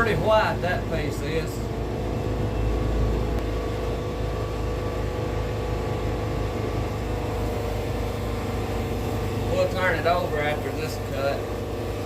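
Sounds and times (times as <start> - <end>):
sawmill engine droning: 0.0 - 12.0.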